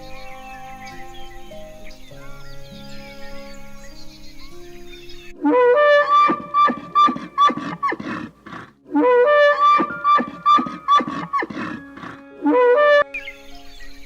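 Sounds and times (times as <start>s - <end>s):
elk bugling: 5.4s - 13.3s.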